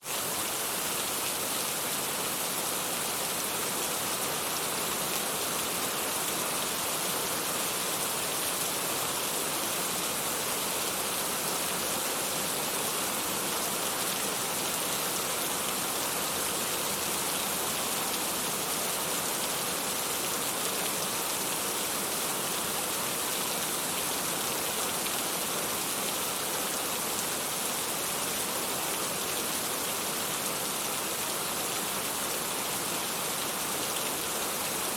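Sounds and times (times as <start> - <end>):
steady rainfall: 0.0 - 34.9.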